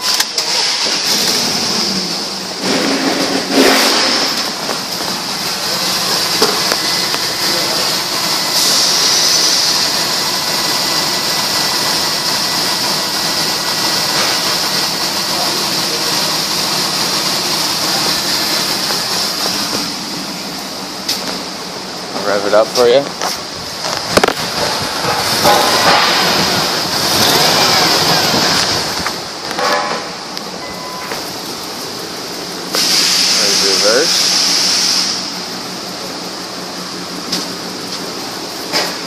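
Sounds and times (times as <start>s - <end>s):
car engine idling: 0.0s - 39.0s
high-pitched whine: 23.8s - 35.4s.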